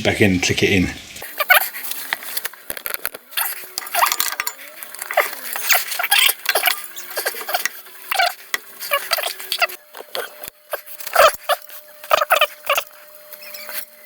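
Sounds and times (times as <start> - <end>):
metallic clinks and scrapes: 1.8 - 7.8.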